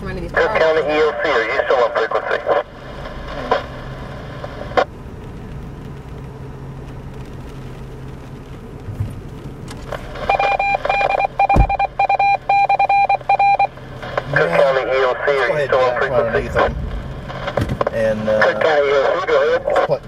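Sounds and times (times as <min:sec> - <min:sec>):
radio low hum: 0:00.0 - 0:07.2, 0:09.6 - 0:20.0
electronic beeps: 0:10.2 - 0:13.7.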